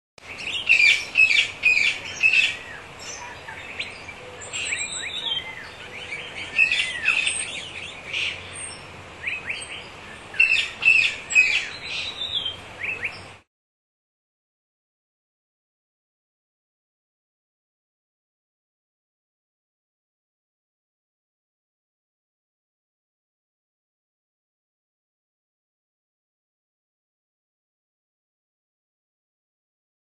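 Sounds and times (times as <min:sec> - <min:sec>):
birds chirping: 0:00.2 - 0:13.4
faint steady hiss: 0:00.2 - 0:13.5.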